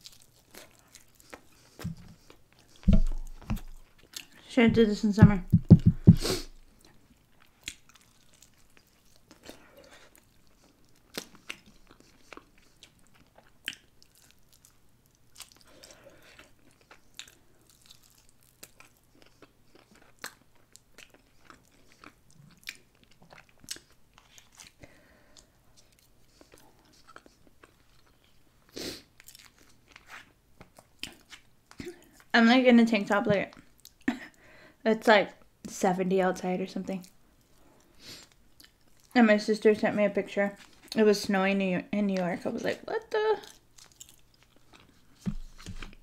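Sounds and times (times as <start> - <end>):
biting and chewing: 0.0 - 4.4, 43.5 - 46.0
mouth clicks and smacks: 5.2 - 6.4.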